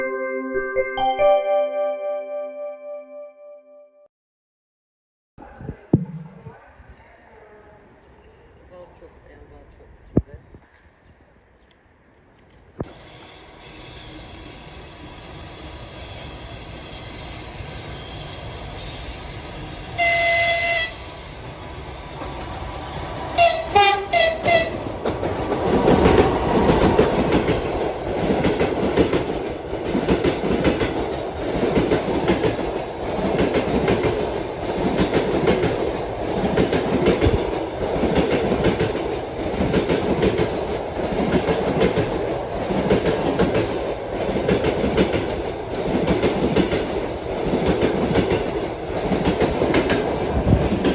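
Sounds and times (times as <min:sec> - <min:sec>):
locomotive horn: 0:20.0 - 0:21.0, 0:23.4 - 0:24.8
train wheels clattering over rail joints: 0:24.5 - 0:50.9.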